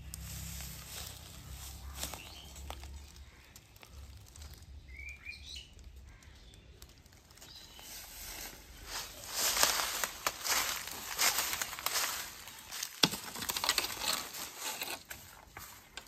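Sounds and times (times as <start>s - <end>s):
dry leaves rustling: 0.0s - 16.0s
small bird chirping: 1.1s - 8.4s.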